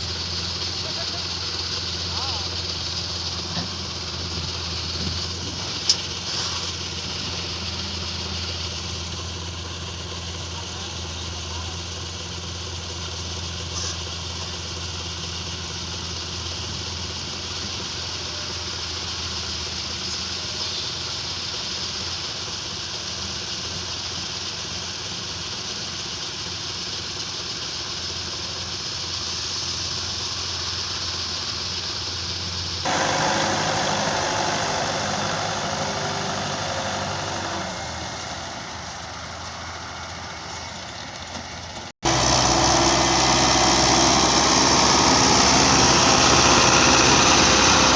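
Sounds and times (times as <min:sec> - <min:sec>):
louder engine: 0:00.0 - 0:12.1, 0:32.8 - 0:40.8, 0:41.8 - 0:47.9
diesel engines running: 0:00.0 - 0:47.9.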